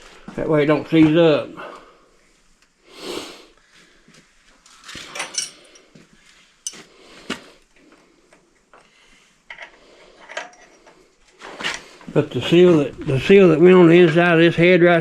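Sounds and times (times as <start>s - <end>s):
metal tools clinking and knocking: 4.7s - 6.0s, 9.5s - 11.0s.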